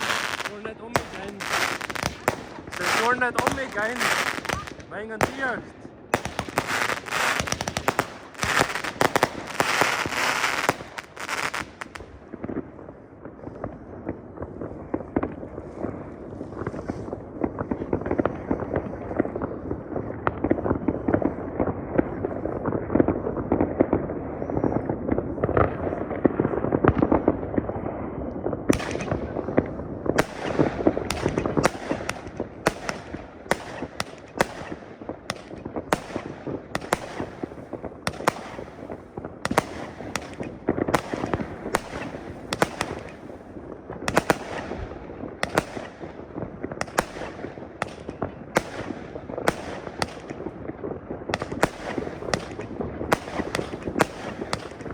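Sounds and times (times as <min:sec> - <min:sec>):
fireworks bangs: 0:00.0 - 0:54.9
fireworks crackling: 0:00.0 - 0:54.9.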